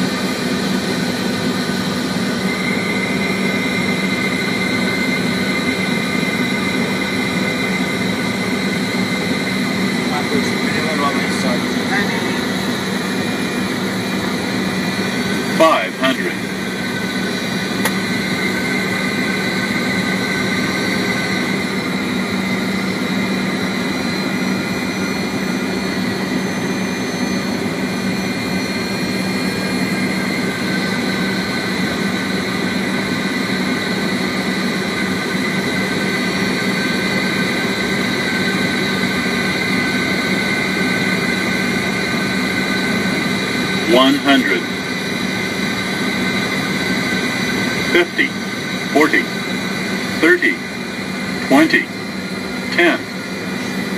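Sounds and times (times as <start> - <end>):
jet engines humming and whining: 0.0 - 53.9.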